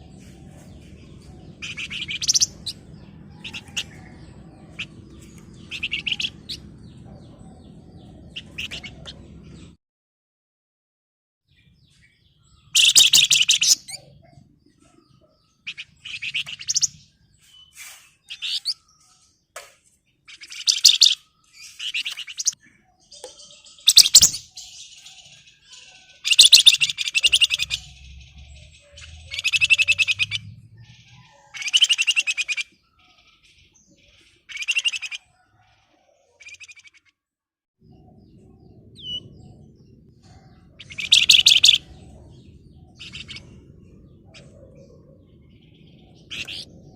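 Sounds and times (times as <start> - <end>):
songbird rattling trills: 25.7 - 28.2, 40.8 - 41.9
low rumble: 37.8 - 40.8.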